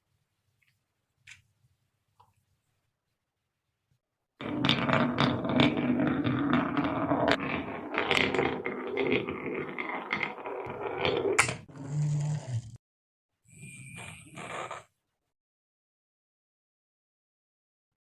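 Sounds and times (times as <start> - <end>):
marbles clattering down a track: 4.4 - 11.6.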